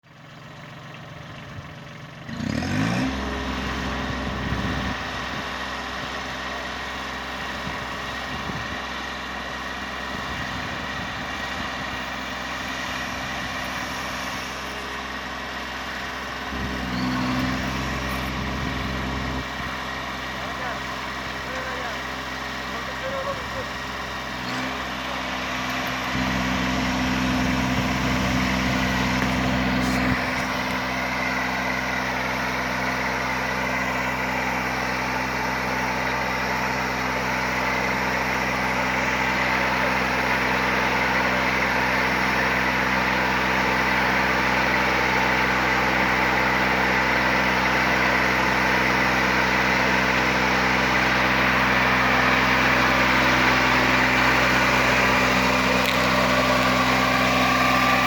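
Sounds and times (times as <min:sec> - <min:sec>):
tractor engine humming: 0:00.0 - 0:58.0.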